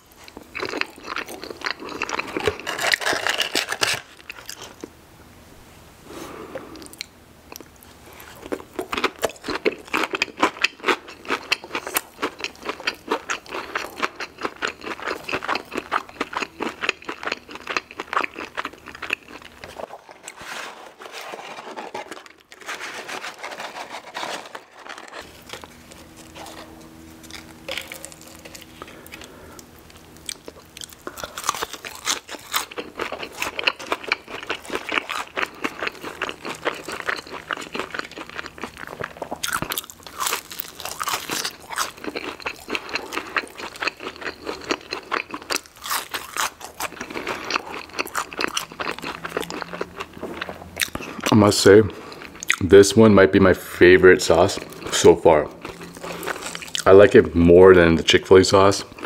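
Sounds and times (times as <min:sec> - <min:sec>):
crunchy chewing: 0:00.0 - 0:04.9, 0:06.6 - 0:20.4, 0:21.0 - 0:52.6, 0:54.2 - 0:57.3.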